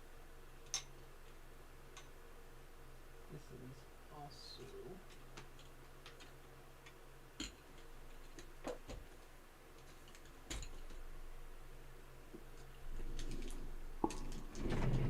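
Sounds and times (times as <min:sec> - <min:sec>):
low electrical hum: 0:00.0 - 0:15.0
faint sharp clicks and taps: 0:04.6 - 0:11.0.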